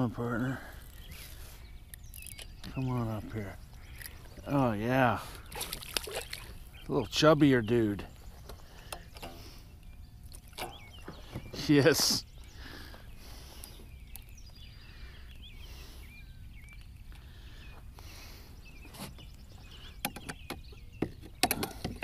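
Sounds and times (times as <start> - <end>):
birds chirping: 0.0 - 22.0
quiet outdoor ambience: 0.0 - 22.0
clicks and knocks in a boat: 5.3 - 6.6, 10.3 - 12.3, 19.9 - 22.0.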